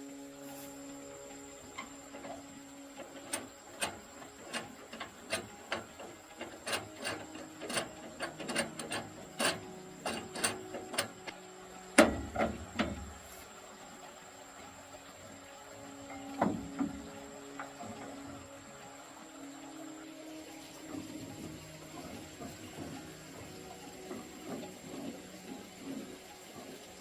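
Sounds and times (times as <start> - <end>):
tools clicking and knocking: 3.2 - 11.2.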